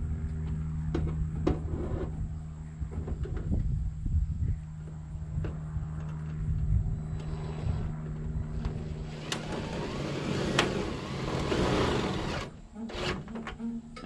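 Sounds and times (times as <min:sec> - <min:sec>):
lift engine humming: 0:04.7 - 0:14.0.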